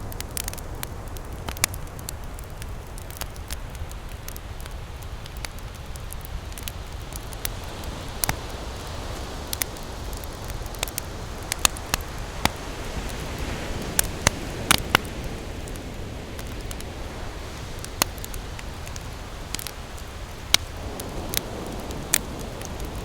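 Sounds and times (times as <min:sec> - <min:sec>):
campfire crackling and popping: 0:00.0 - 0:23.0
ocean waves: 0:00.0 - 0:23.0.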